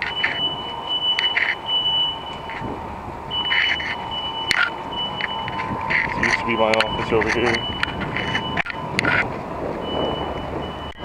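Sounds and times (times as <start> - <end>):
smoke alarm tone: 0.0 - 2.6, 3.3 - 11.0.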